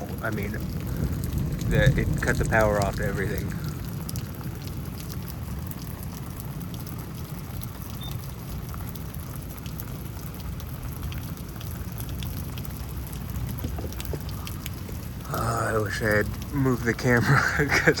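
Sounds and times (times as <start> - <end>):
raindrops ticking near microphone: 0.0 - 18.0
steady rain: 0.0 - 18.0.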